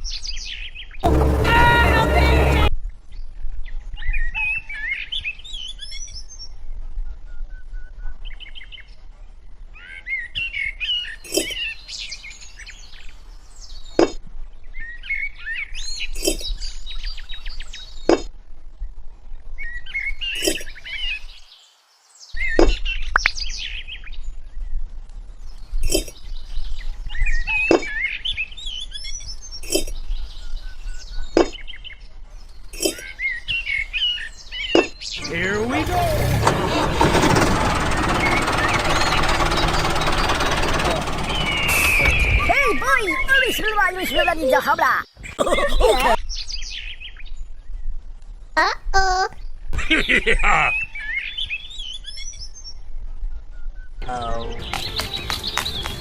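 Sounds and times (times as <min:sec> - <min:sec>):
small birds chirping: 0:09.8 - 0:18.3, 0:19.6 - 0:24.8, 0:25.4 - 0:36.1, 0:37.9 - 0:48.0.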